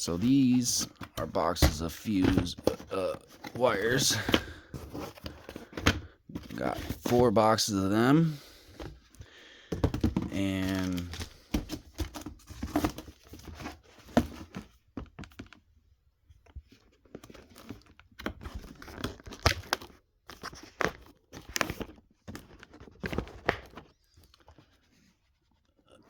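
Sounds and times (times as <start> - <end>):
packaging crinkling and tearing: 10.4 - 11.5.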